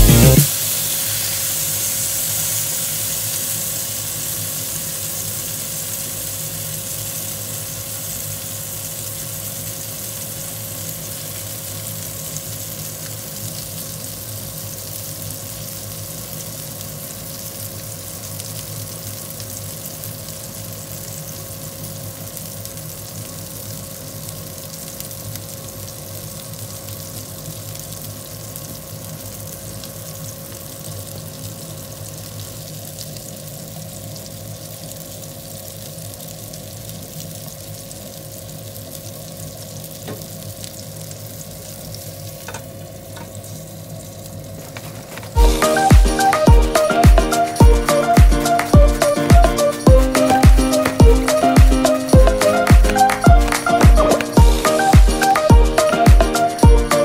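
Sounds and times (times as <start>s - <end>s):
meat sizzling in a frying pan: 0.1s - 45.9s.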